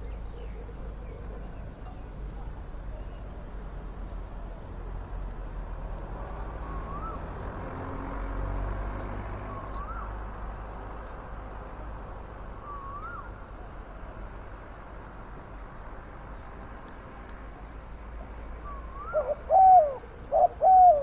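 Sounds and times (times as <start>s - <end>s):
rising and falling bird whistle: 6.6s - 7.3s, 9.5s - 10.1s, 12.6s - 13.3s, 18.6s - 20.0s
doves cooing: 18.6s - 21.0s.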